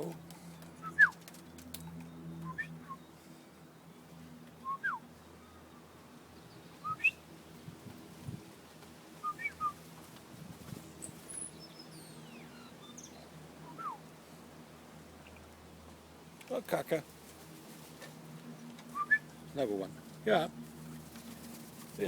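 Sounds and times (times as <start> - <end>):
birds whistling: 2.4 - 3.2, 4.6 - 5.6, 6.5 - 7.2, 9.2 - 9.8, 11.0 - 14.1, 18.9 - 19.3.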